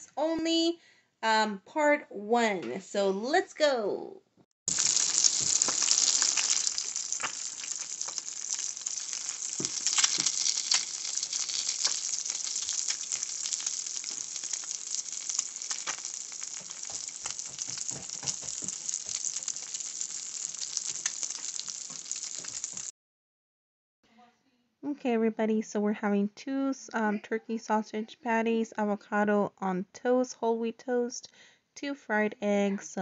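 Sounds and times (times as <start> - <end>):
crackling pops of fat: 4.7 - 22.9
food sizzling in a pan: 4.7 - 22.9.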